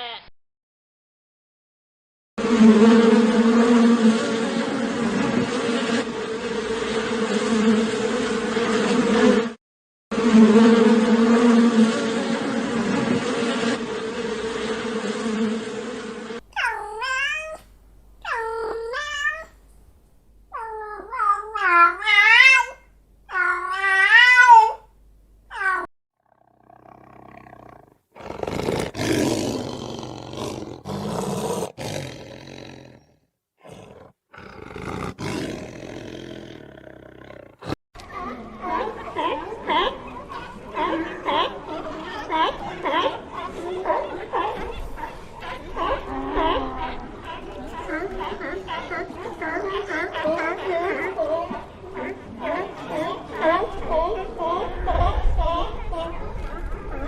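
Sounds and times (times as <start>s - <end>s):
bees buzzing: 2.4s - 9.5s, 10.2s - 16.4s
cat meowing: 16.5s - 17.7s.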